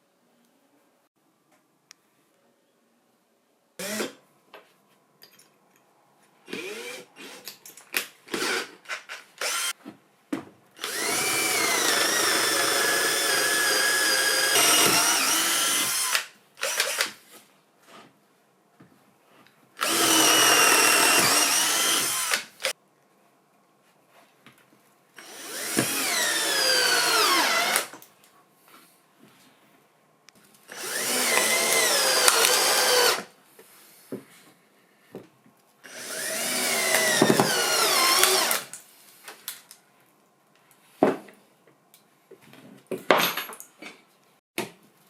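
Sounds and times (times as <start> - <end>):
cordless drill motor running: 3.8 - 4.1, 6.5 - 7.4, 8.4 - 8.7, 9.4 - 9.7, 10.8 - 17.1, 19.8 - 22.7, 25.2 - 27.9, 30.7 - 33.3, 35.9 - 38.7.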